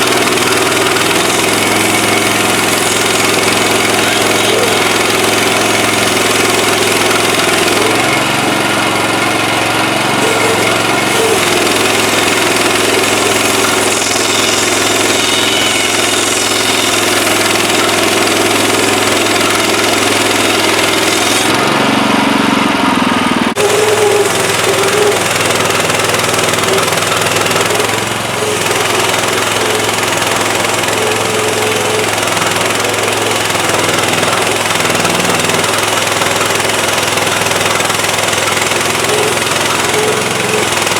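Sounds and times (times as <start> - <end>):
small gasoline engine running: 0.0 - 40.9.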